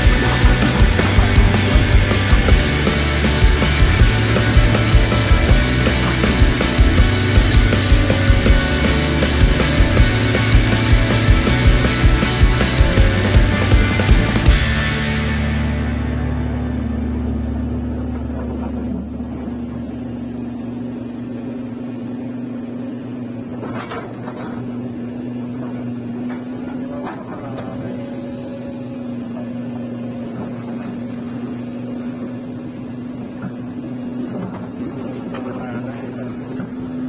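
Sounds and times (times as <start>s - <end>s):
deep low rumble: 0.0s - 19.8s
excavator diesel engine running: 0.0s - 37.0s.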